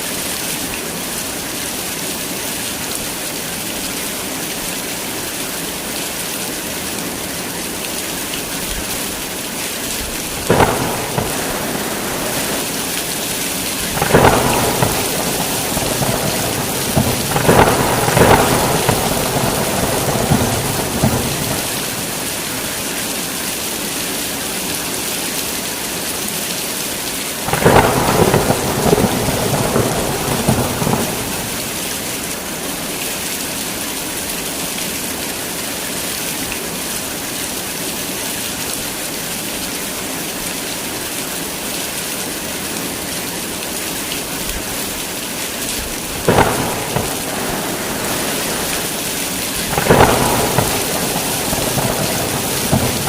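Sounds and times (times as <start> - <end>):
heavy rain falling: 0.0 - 53.0
thunder cracking and rumbling: 10.4 - 22.8, 27.5 - 32.2, 46.0 - 53.0.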